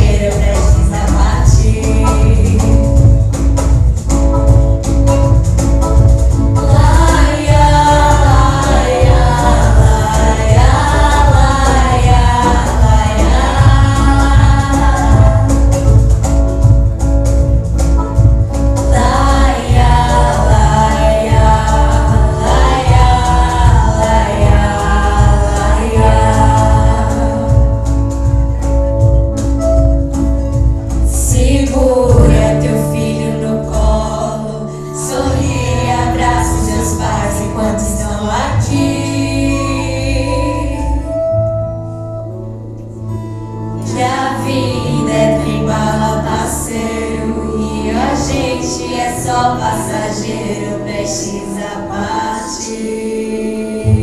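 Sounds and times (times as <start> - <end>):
people singing: 0.0 - 3.2, 6.4 - 16.3, 18.8 - 28.4, 31.1 - 41.2, 43.8 - 54.0
instrumental backing with bass: 0.0 - 54.0.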